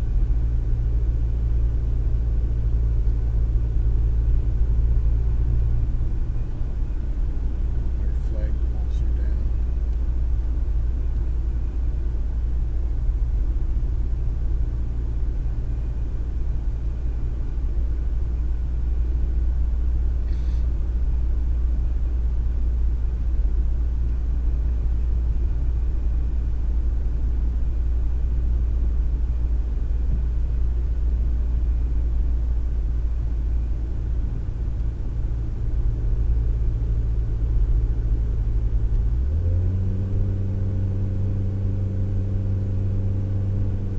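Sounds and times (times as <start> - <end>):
car engine and road noise: 0.0 - 43.9.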